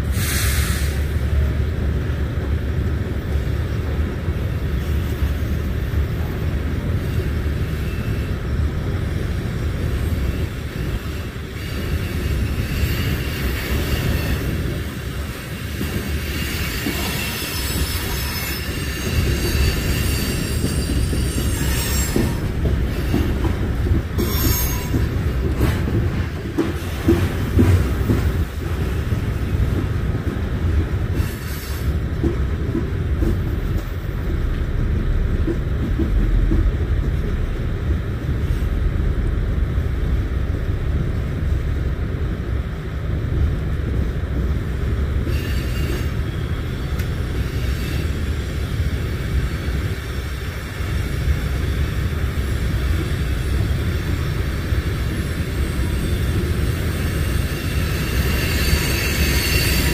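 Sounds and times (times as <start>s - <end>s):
freight train rumbling past: 0.0s - 59.9s
high wheel squeal: 10.1s - 23.6s, 24.2s - 25.3s, 45.2s - 48.9s, 55.2s - 59.9s
wheel clatter on rails: 11.8s - 37.5s.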